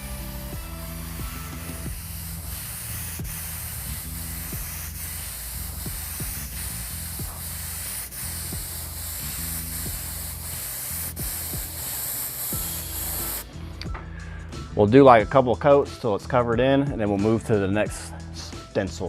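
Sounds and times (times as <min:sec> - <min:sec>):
airbrush spraying paint: 0:00.0 - 0:13.5.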